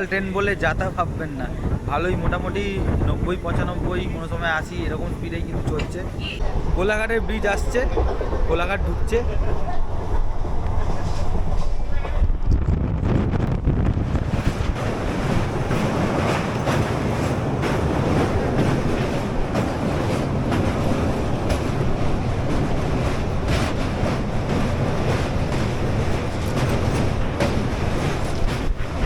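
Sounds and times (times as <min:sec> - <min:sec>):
train wheels rumbling on rails: 0:00.0 - 0:29.0
faint rail clicks: 0:02.5 - 0:06.2.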